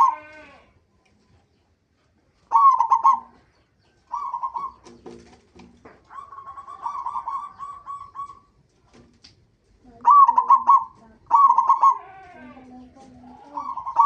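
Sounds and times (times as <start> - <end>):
dove cooing: 2.5 - 5.3, 6.1 - 8.6, 9.9 - 14.0.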